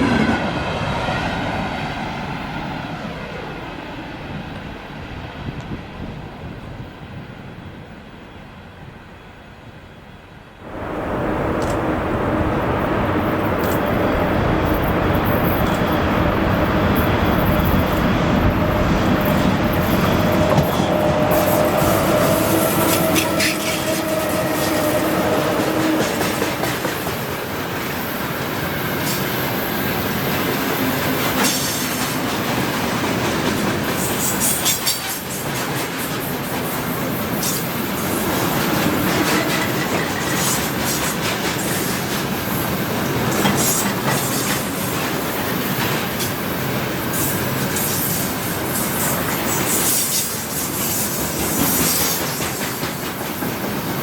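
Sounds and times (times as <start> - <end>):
electric locomotive hum: 0.0 - 54.0
freight train rumbling past: 0.0 - 54.0
train wheels clattering over rail joints: 13.4 - 54.0.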